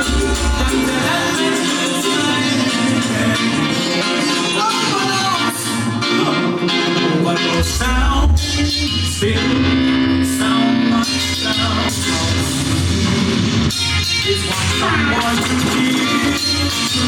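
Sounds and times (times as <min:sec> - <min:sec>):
song with heavy bass: 0:00.0 - 0:17.0.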